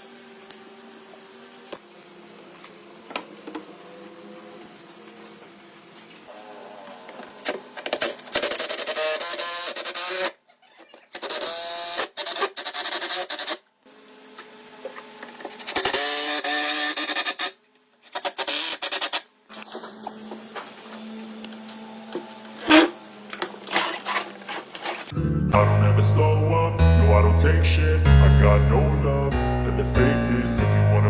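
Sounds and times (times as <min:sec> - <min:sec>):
power tool cutting wood: 0:00.0 - 0:10.4, 0:11.1 - 0:25.2.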